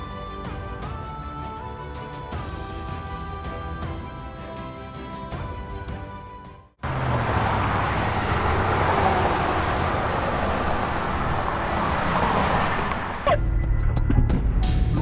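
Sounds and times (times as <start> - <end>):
road traffic noise: 6.8 - 13.4.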